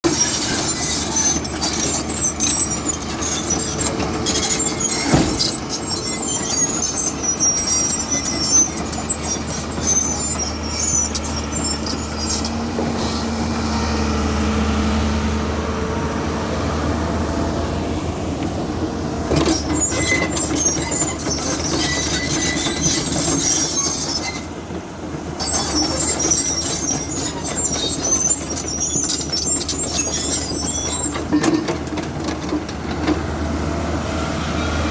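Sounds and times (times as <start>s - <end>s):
high metallic squeaks and clicks: 0.0s - 13.3s, 19.3s - 24.6s, 25.4s - 33.2s
excavator diesel engine humming: 0.1s - 34.9s.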